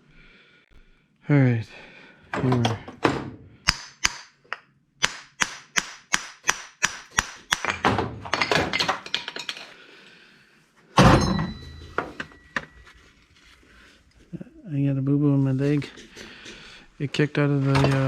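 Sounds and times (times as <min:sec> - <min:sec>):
hammer striking metal: 0:03.7 - 0:07.8.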